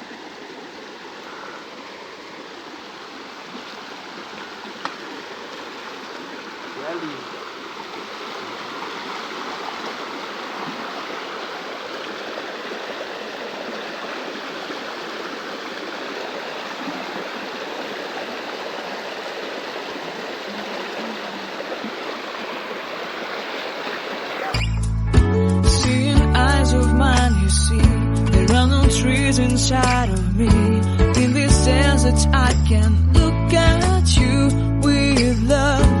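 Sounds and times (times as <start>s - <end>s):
small stream flowing: 0.0s - 24.8s.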